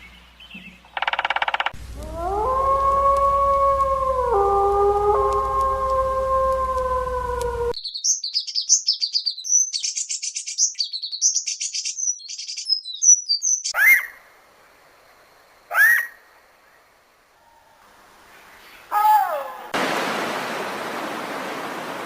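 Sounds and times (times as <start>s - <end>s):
dog-like howl: 2.0s - 7.8s
small bird chirping and trilling: 7.8s - 14.2s
short sharp bird calls: 13.6s - 14.2s, 15.7s - 16.2s.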